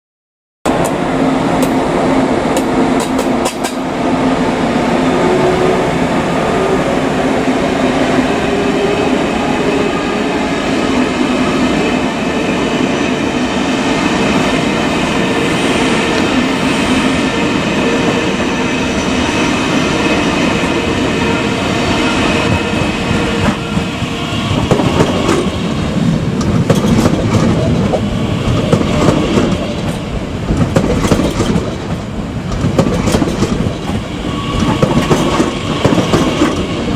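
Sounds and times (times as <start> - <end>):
train humming: 0.7 - 36.9
train rumbling: 0.7 - 36.9
wheels clicking over rail joints: 2.6 - 3.8, 26.4 - 28.0, 28.6 - 34.0.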